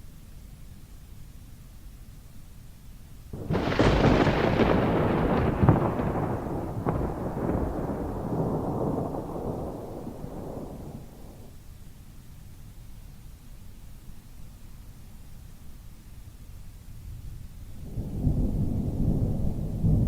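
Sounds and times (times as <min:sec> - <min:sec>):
steady rain: 0:02.6 - 0:20.0
thunder cracking and rumbling: 0:03.4 - 0:11.6, 0:17.7 - 0:20.0.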